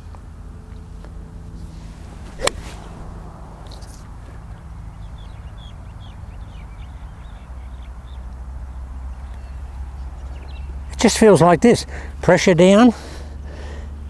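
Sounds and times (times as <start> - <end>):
low steady background rumble: 0.0 - 14.0
small birds chirping: 1.6 - 11.0
golf club striking ball: 1.8 - 4.0.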